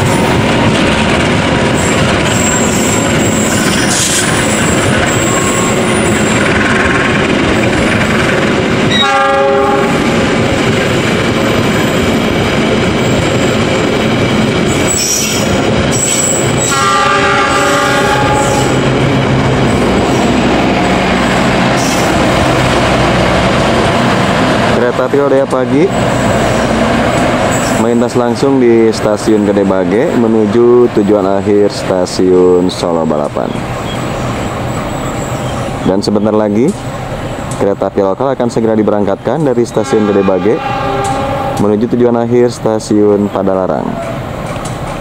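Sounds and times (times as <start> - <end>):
train wheels rumbling on rails: 0.0 - 45.0
high wheel squeal: 1.8 - 6.5, 14.7 - 18.8, 33.4 - 36.3, 39.7 - 41.7
diesel locomotive horn: 8.9 - 10.2, 16.3 - 19.0, 39.7 - 41.9.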